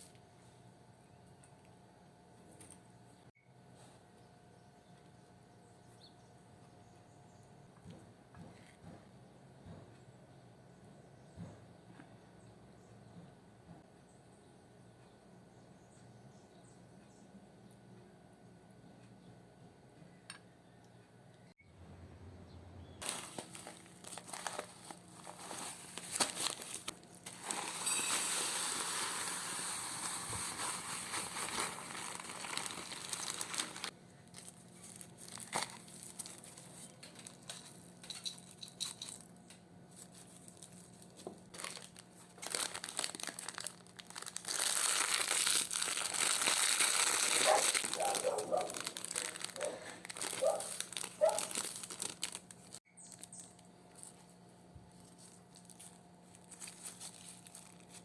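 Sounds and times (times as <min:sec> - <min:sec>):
crinkling rustling handling noise: 0:23.0 - 0:58.0.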